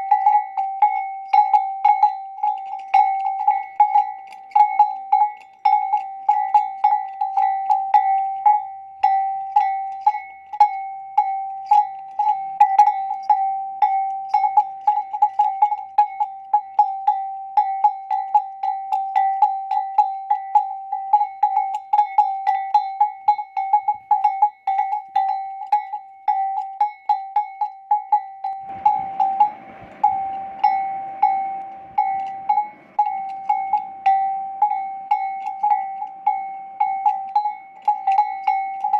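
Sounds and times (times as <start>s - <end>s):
camel bell clanking: 0.0s - 38.9s
rough rushing noise: 28.6s - 34.8s.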